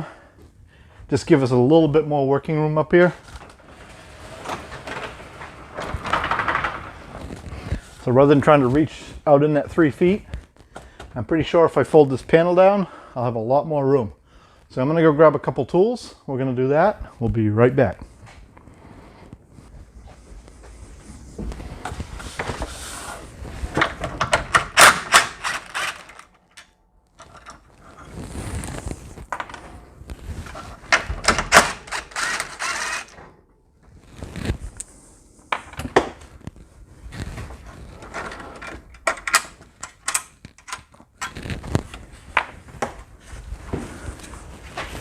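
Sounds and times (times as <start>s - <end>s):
tools and hardware rattling: 23.6s - 33.4s, 37.6s - 41.6s.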